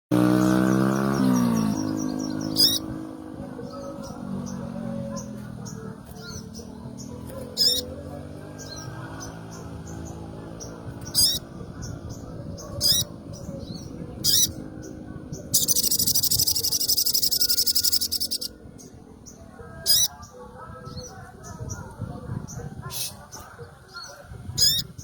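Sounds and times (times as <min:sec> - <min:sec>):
songbird chirping: 0:00.2 - 0:25.0
low background murmur: 0:01.7 - 0:25.0
bird buzzing trill: 0:15.5 - 0:18.6.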